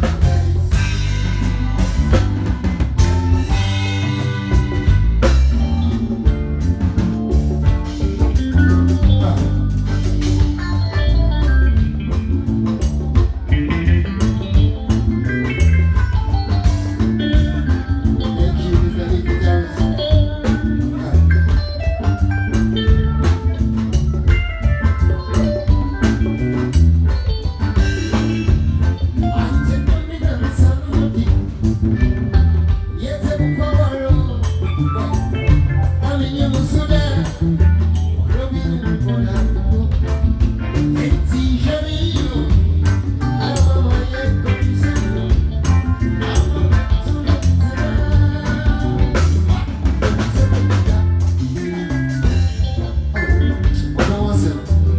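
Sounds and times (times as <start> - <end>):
bass: 0.0 - 54.9
drum kit: 0.0 - 54.9
guitar: 0.0 - 54.9
person singing: 8.3 - 11.8, 15.6 - 22.2, 28.1 - 52.6, 53.2 - 54.9.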